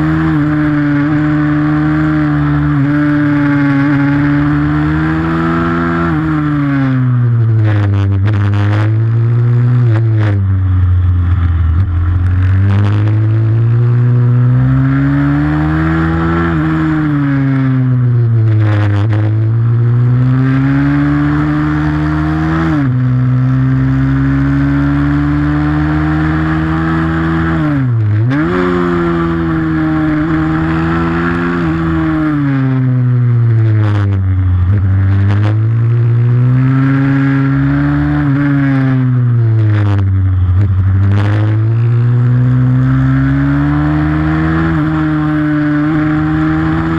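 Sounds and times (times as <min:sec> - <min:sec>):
motorbike engine racing: 0:00.0 - 0:46.9.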